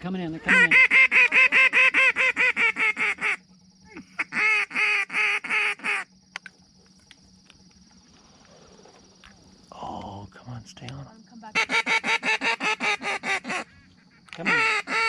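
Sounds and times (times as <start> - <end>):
faint high-pitched hum: 0.0 - 15.0
duck call rapid notes: 0.4 - 3.4, 4.2 - 6.1, 11.6 - 13.7, 14.4 - 15.0.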